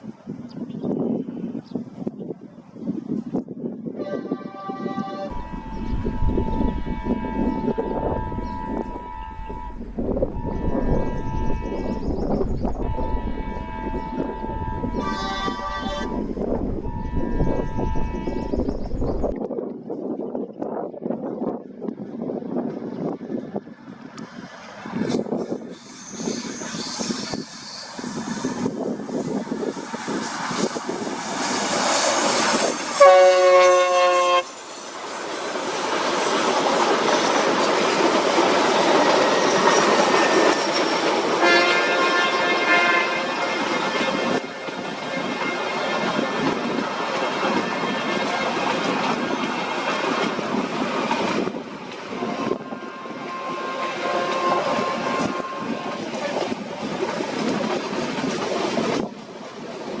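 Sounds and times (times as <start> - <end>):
locomotive horn blast: 4.0 - 12.0, 12.8 - 18.5, 32.9 - 34.5, 41.4 - 44.4, 52.2 - 56.1
train wheels rumbling on track: 5.0 - 20.8, 21.4 - 60.0
train wheels clattering on rails: 34.5 - 42.5, 43.3 - 60.0.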